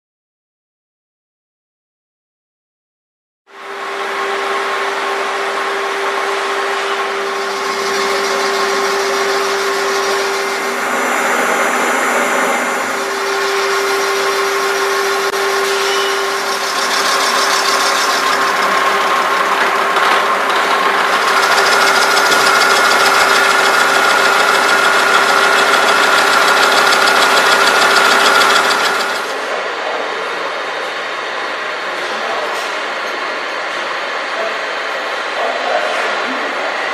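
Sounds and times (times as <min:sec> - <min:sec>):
higher machine whine: 0:03.5 - 0:32.4
milling machine humming and whining: 0:03.5 - 0:36.9.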